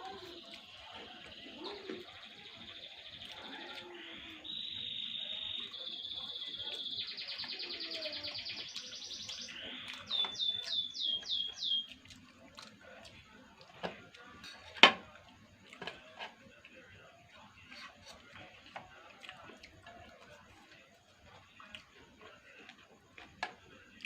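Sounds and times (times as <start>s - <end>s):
songbird singing: 0.0s - 12.1s.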